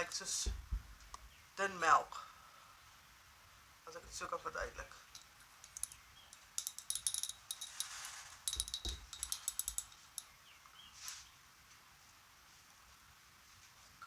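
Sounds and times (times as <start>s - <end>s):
glass bottle rattling: 5.1s - 10.4s.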